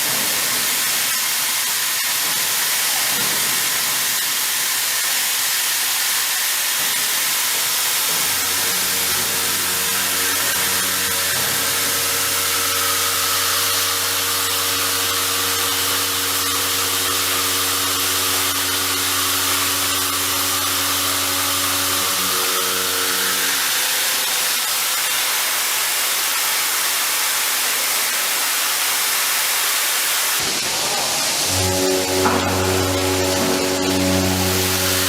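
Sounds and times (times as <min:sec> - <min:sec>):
milling cut and coolant hiss: 0:00.0 - 0:35.0
low machine hum: 0:08.0 - 0:23.9, 0:31.5 - 0:35.0.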